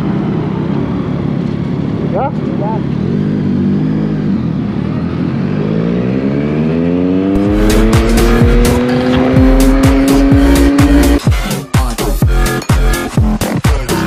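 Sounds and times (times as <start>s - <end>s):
motorcycle engine accelerating: 0.0s - 11.4s
electronic dance music: 7.4s - 14.0s.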